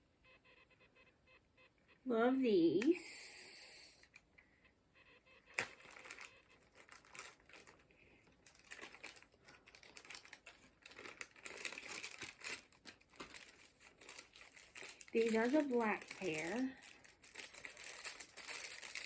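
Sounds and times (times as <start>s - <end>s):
plastic packaging crinkling: 5.5s - 19.0s.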